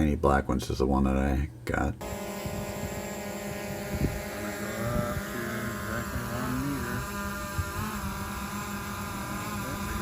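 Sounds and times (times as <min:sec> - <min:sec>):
drone propellers whining: 0:02.0 - 0:10.0.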